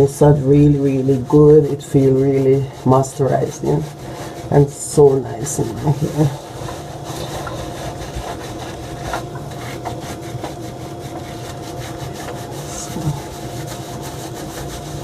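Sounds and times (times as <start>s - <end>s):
hands scrubbing wet hair: 0.0s - 15.0s
tap running: 5.7s - 15.0s.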